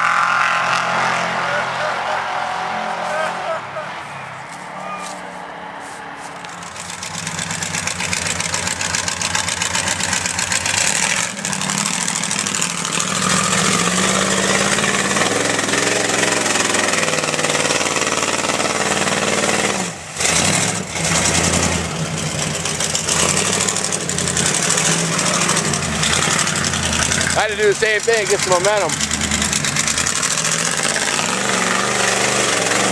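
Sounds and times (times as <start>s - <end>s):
truck engine revving: 0.0s - 32.9s.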